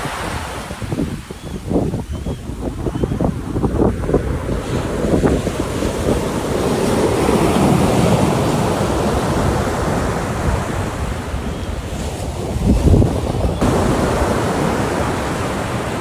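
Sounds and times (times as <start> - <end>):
ocean surf washing onto beach: 3.3 - 16.0.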